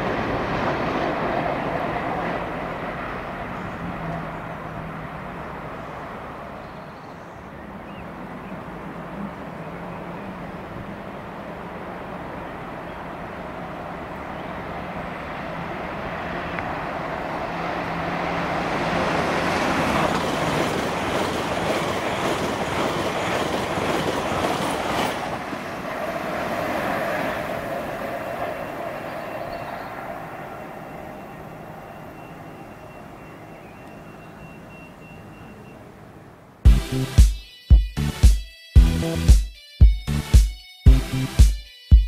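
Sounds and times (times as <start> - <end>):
train passing: 0.0 - 37.5.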